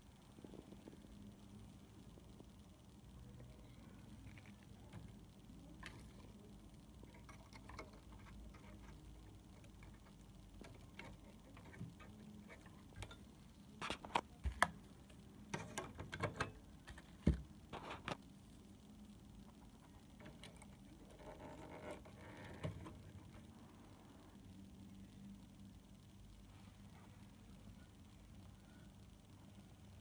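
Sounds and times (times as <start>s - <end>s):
faint steady hum: 0.0s - 30.0s
light clicks and taps: 3.4s - 18.2s.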